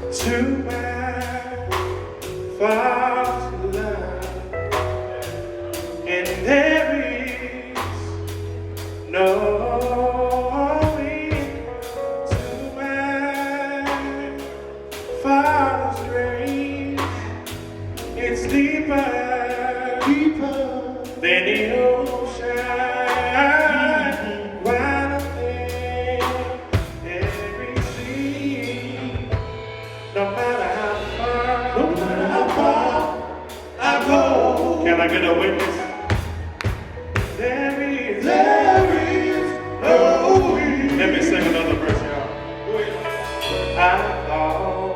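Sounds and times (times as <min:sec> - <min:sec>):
bass line: 0:00.0 - 0:44.9
drum kit beat: 0:00.0 - 0:44.9
voices singing gospel: 0:00.0 - 0:44.9.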